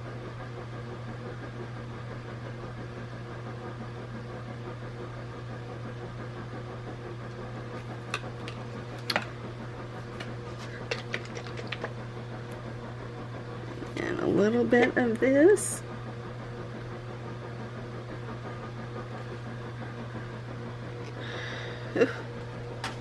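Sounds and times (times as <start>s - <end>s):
paint containers clicking: 7.8s - 9.3s, 10.0s - 12.0s.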